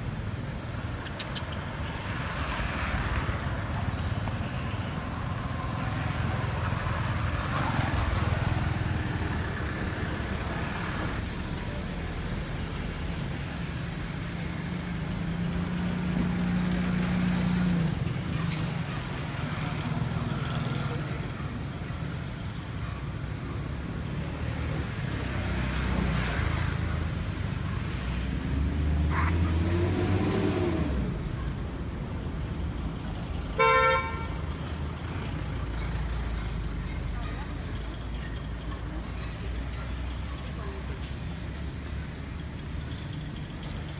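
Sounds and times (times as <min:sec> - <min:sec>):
road traffic rumble: 0:00.0 - 0:43.9
vehicle horn: 0:33.6 - 0:34.4.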